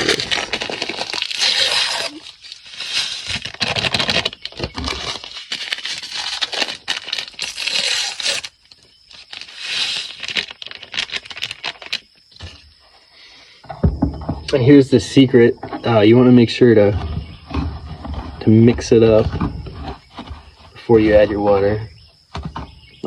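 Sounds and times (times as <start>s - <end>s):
paper packets tearing and crinkling: 0.0s - 12.1s.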